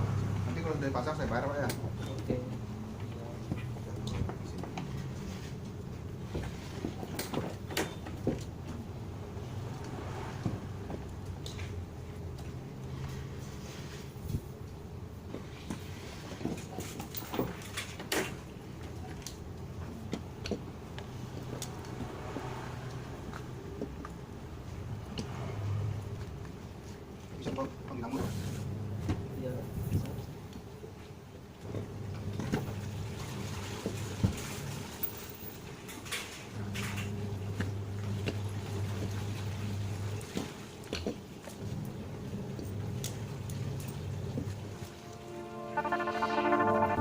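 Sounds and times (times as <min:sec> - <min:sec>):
washing machine motor hum: 0:36.6 - 0:40.8.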